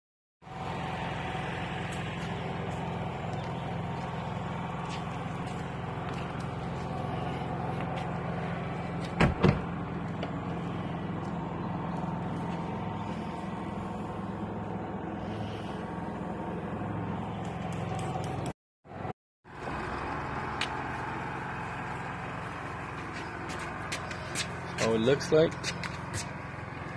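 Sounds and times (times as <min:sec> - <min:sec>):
motor humming: 0:00.5 - 0:18.5.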